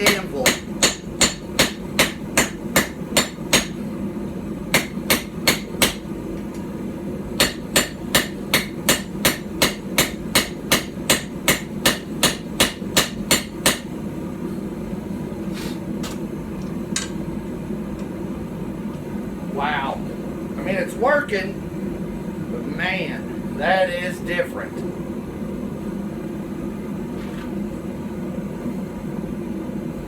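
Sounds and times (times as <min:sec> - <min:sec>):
hammer clanging on anvil: 0:00.0 - 0:03.8.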